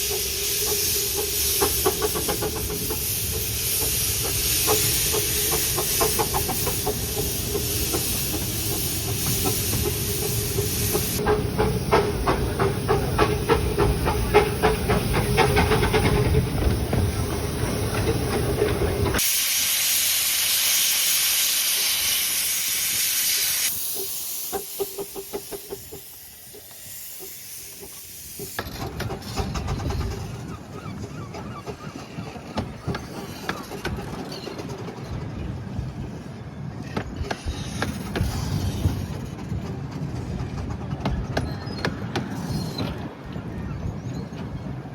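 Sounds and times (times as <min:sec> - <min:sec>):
steam hiss: 0:00.0 - 0:29.1
steam locomotive exhaust beats: 0:00.0 - 0:30.3.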